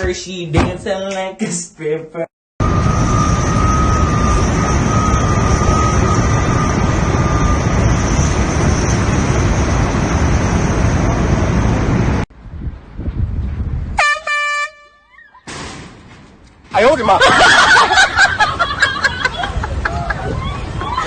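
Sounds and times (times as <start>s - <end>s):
faint high whine: 2.6s - 9.4s
air horn blast: 14.0s - 15.1s.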